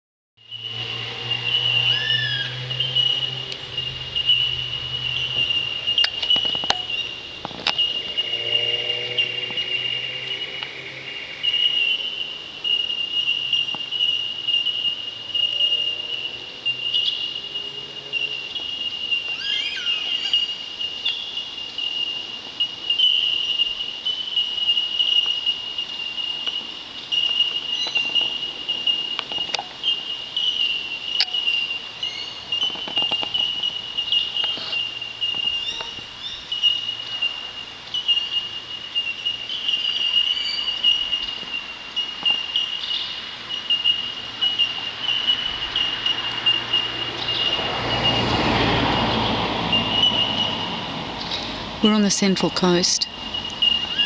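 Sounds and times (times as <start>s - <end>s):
bellbirds ringing tink notes: 14.9s - 25.4s.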